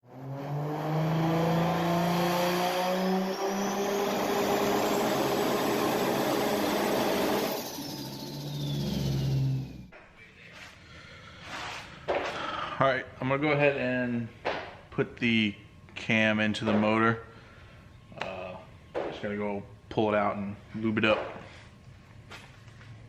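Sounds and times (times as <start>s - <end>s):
high whine: 0.0s - 9.9s.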